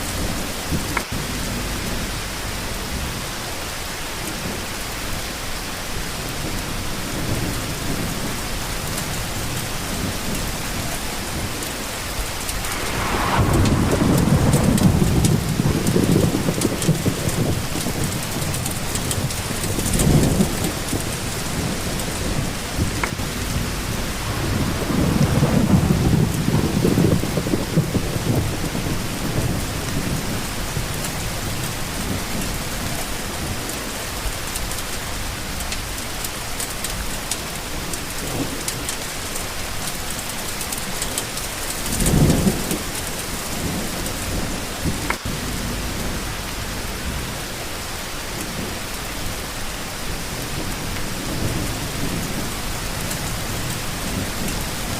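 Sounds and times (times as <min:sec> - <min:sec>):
steady rain falling: 0:00.0 - 0:54.9
thunder rumbling: 0:06.3 - 0:36.0, 0:41.4 - 0:54.9.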